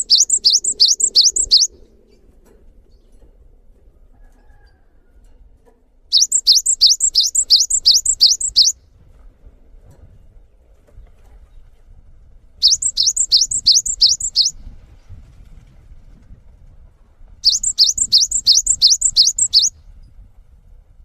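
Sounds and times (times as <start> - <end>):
songbird chirping: 0.0 - 2.4, 6.1 - 8.8, 12.6 - 14.6, 17.4 - 19.7.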